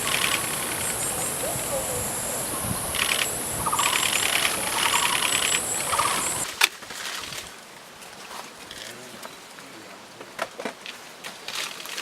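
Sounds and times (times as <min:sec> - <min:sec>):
bird rattling calls: 0:00.0 - 0:06.5
steady high hiss: 0:00.0 - 0:06.5.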